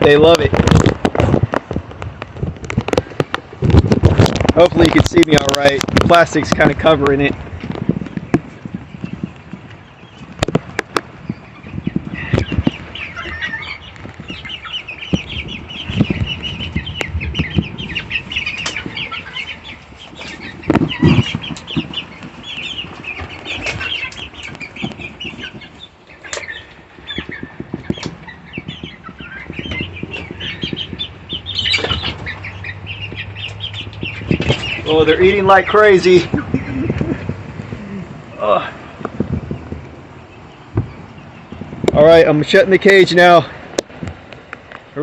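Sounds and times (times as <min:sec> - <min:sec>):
chickens calling: 0:00.0 - 0:45.0
wings flapping: 0:12.0 - 0:35.0.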